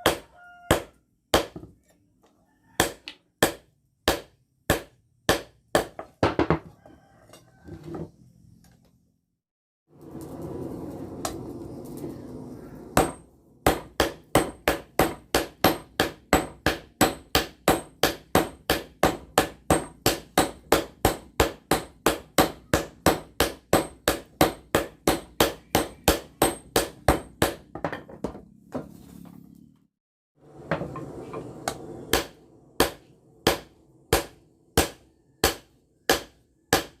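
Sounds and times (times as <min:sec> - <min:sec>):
hammer beating blade on anvil: 0:31.7 - 0:37.0.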